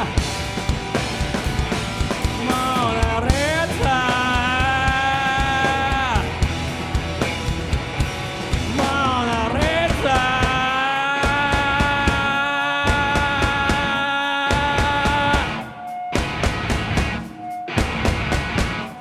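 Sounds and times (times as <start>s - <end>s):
bass guitar: 0.0s - 19.0s
distorted electric guitar: 0.0s - 19.0s
pounding drums: 0.0s - 19.0s.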